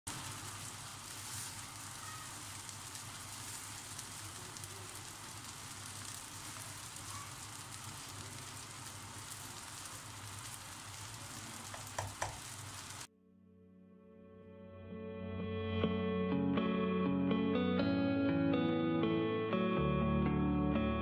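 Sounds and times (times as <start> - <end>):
rice sizzling in a frying pan: 0.1 - 13.1.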